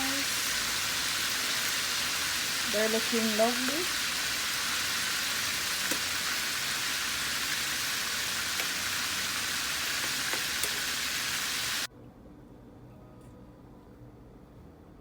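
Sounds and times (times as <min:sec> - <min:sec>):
oil sizzling with pops: 0:00.0 - 0:11.9.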